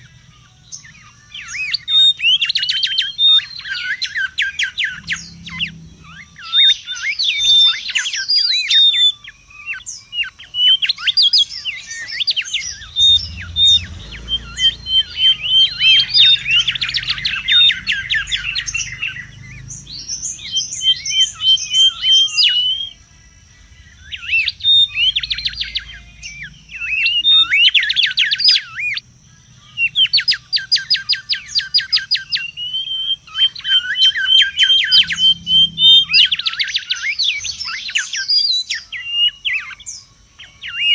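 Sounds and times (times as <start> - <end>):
bird singing sharp whistles: 0.0 - 23.0, 23.8 - 40.9.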